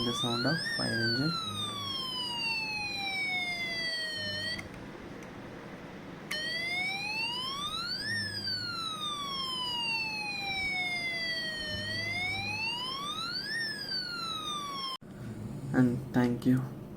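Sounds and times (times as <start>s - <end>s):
electronic siren wailing: 0.0s - 4.8s, 6.3s - 15.0s.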